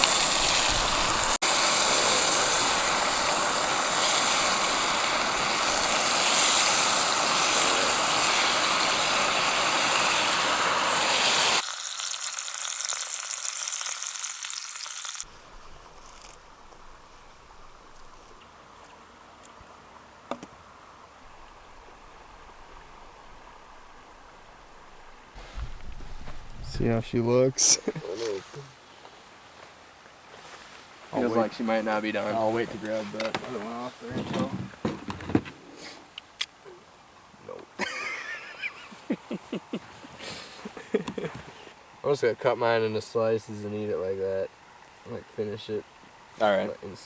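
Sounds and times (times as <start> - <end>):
steaks sizzling in a pan: 0.0 - 15.3
quiet outdoor background: 0.0 - 47.0.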